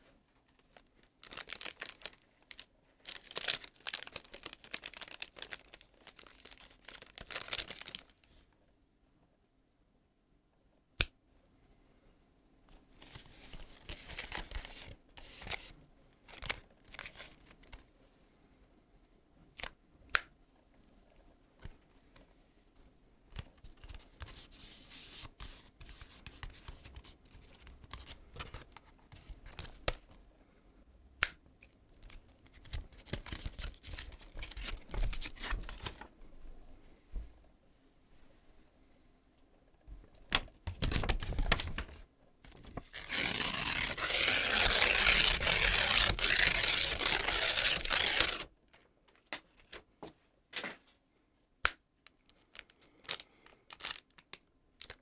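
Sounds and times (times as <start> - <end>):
packaging crinkling and tearing: 0.6 - 8.4, 32.0 - 36.0, 42.6 - 48.5, 52.3 - 55.0.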